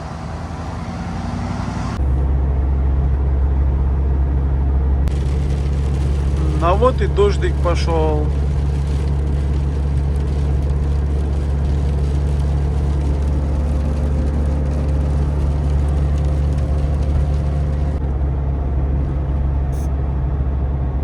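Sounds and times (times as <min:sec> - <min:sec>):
engine and road drone in van: 0:00.0 - 0:21.0.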